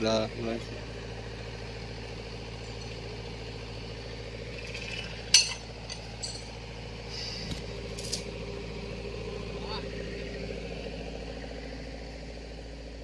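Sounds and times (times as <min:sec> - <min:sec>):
engine idling: 0:00.0 - 0:13.0
metallic clinks: 0:02.6 - 0:03.1, 0:04.6 - 0:06.6, 0:07.9 - 0:08.4.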